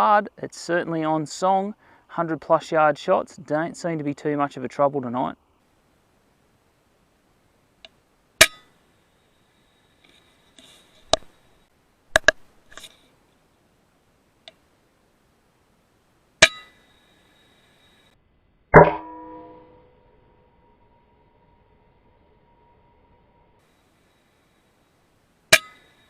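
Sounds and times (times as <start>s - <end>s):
loud ringing metal clang: 16.4s - 17.0s, 18.8s - 23.6s.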